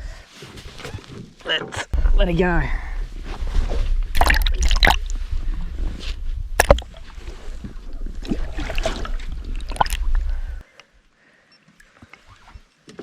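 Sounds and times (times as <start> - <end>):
wind rumbling on microphone: 2.0 - 10.6
water sloshing: 3.7 - 10.6.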